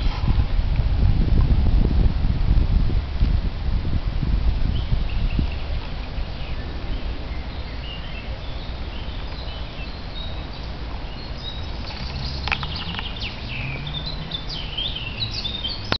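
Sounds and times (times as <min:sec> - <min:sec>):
small birds chirping: 0:04.6 - 0:15.9.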